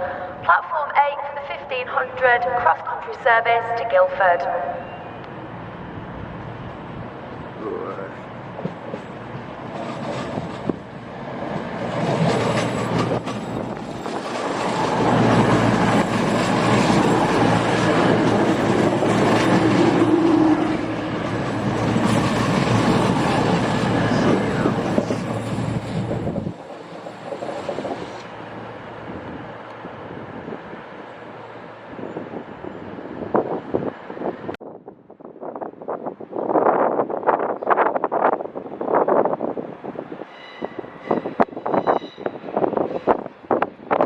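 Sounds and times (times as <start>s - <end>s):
train rumbling past: 2.8s - 44.0s
high wheel squeal: 40.3s - 43.2s.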